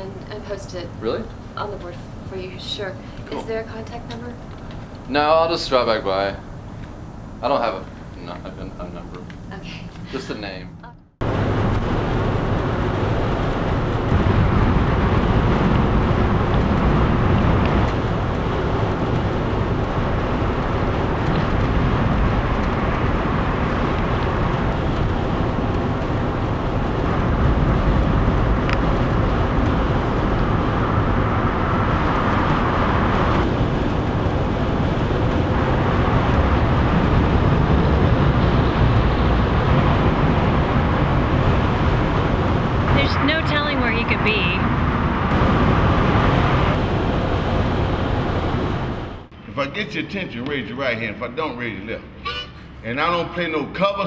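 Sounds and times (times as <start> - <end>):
road noise low rumble: 0.0 - 54.0.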